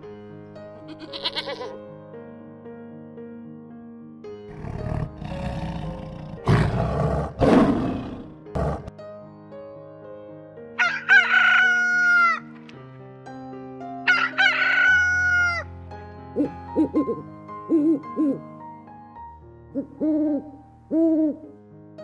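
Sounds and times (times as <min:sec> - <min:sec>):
soft background music: 0:00.0 - 0:22.0
rooster crowing: 0:10.8 - 0:12.4, 0:14.1 - 0:15.7.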